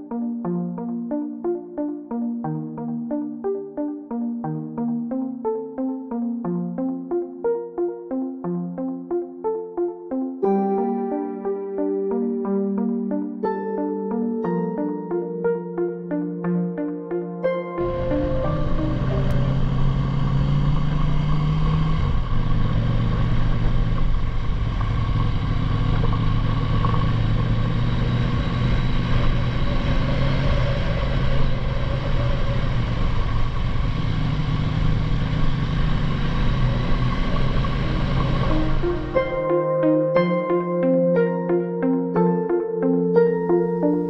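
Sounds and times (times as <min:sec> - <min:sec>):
motorcycle engine running: 0:17.8 - 0:38.8.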